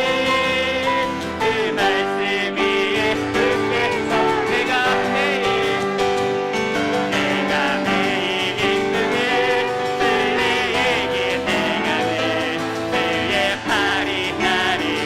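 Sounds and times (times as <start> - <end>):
choir singing with vibrato: 0.0 - 15.0
piano accompaniment: 0.0 - 15.0.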